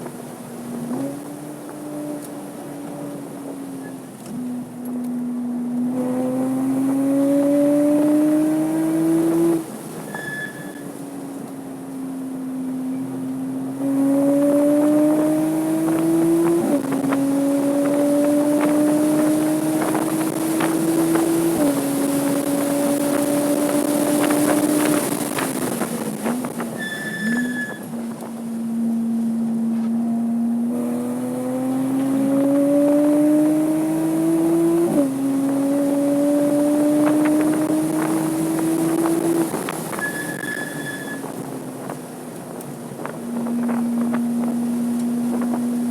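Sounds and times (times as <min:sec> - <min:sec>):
car engine accelerating and shifting: 0:00.0 - 0:45.9
wind rush: 0:14.3 - 0:29.1, 0:31.6 - 0:45.9
brief high tone: 0:40.0 - 0:41.3.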